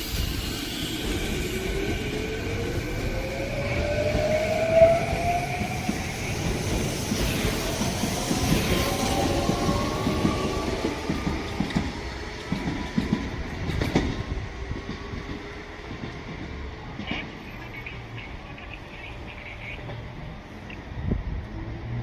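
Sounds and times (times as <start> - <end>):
train wheels clacking on rail joints: 3.8 - 17.9.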